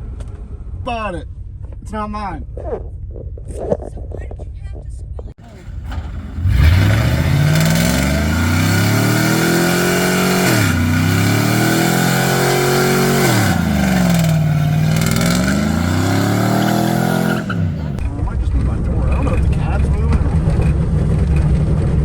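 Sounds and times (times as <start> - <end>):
car engine revving hard: 5.5 - 18.0.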